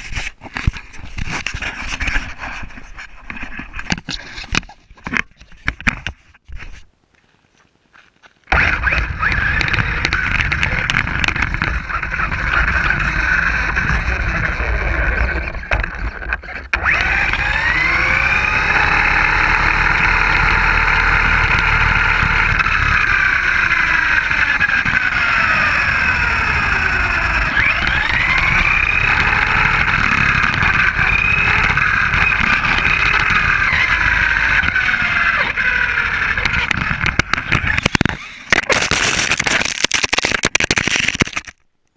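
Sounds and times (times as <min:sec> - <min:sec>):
steady rush of noise: 0:08.1 - 0:41.5
rc truck motor whine: 0:08.5 - 0:41.5.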